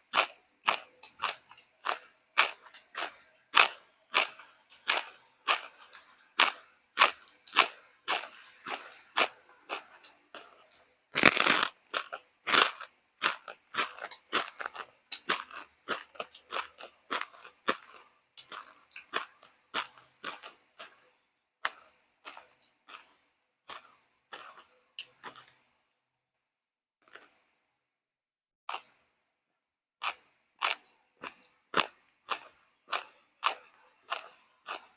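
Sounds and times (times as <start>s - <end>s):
person chewing crunchy food: 0.0s - 25.9s, 27.0s - 27.6s, 28.7s - 29.2s, 30.0s - 34.9s.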